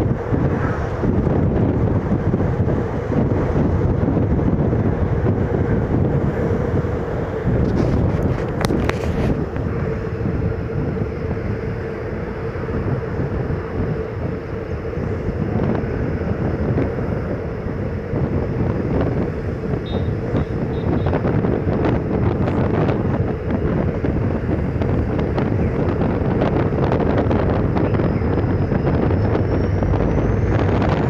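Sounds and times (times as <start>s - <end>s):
wheels rumbling on rails: 0.0s - 31.0s
wind rushing over microphone: 0.0s - 31.0s.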